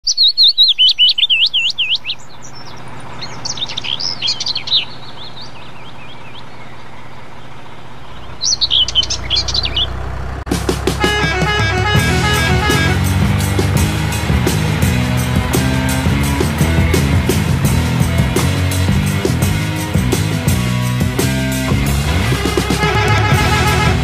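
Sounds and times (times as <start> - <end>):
songbirds chirping: 0.0 - 10.5
low background rumble: 4.8 - 18.4.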